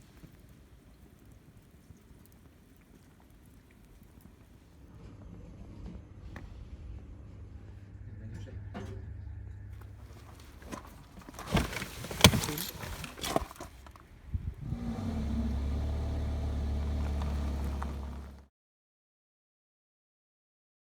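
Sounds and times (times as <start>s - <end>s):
vehicle engine starting and running: 4.9s - 18.5s.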